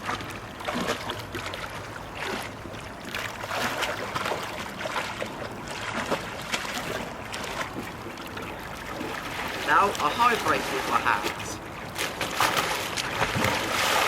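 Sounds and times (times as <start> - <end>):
water swishing and splashing: 0.0 - 14.0.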